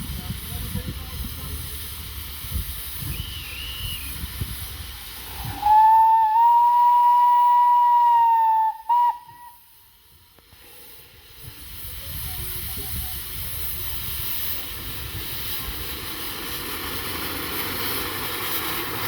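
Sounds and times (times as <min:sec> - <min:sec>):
steam hissing: 0:00.0 - 0:19.0
steam locomotive whistle: 0:03.0 - 0:04.3, 0:05.2 - 0:09.9.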